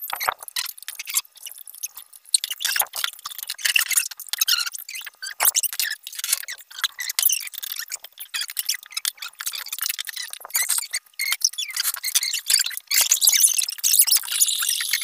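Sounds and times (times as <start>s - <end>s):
slurping and mouth noises: 13.2s - 15.0s.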